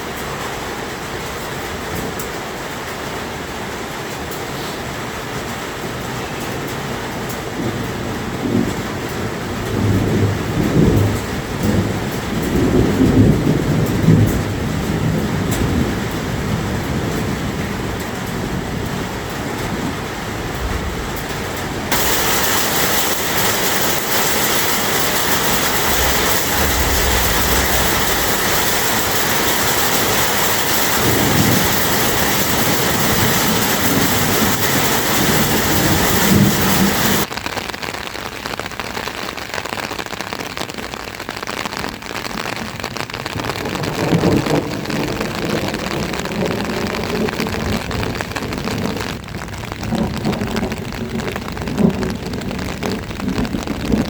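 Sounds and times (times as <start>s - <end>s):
heavy rain hissing: 0.0s - 37.3s, 42.1s - 49.2s
low rumbles: 20.5s - 37.3s.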